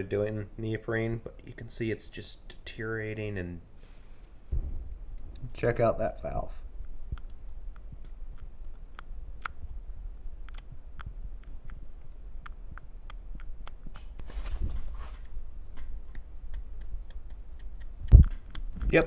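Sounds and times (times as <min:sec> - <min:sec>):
brief rustle: 0:14.2 - 0:15.4.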